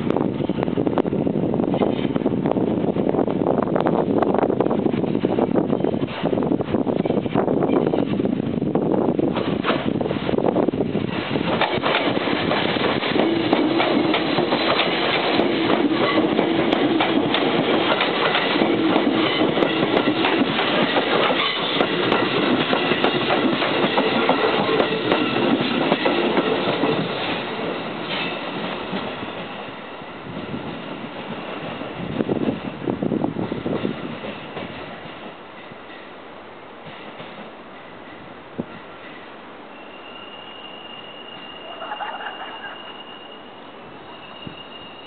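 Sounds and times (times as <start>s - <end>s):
steady train hum: 0.0s - 45.0s
train wheels clacking over rail joints: 9.3s - 10.4s, 11.1s - 29.5s.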